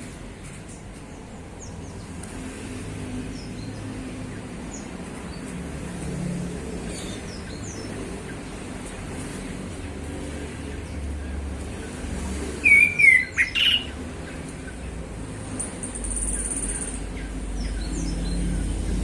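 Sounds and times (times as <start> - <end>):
bird high chirps: 12.6 - 14.0.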